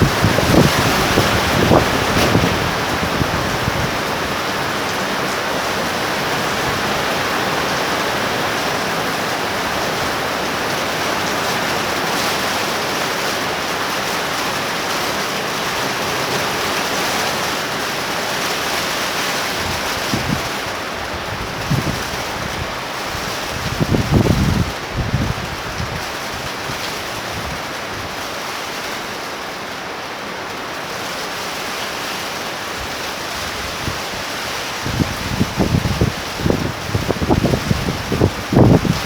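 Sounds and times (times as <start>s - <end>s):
wind buffeting microphone: 0.0s - 8.5s, 19.5s - 28.2s, 32.8s - 39.0s
heavy rain pouring: 0.0s - 39.0s.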